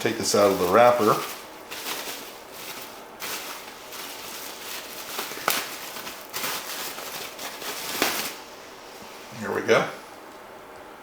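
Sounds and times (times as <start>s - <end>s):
wrapper crinkling and crackling: 0.0s - 8.4s.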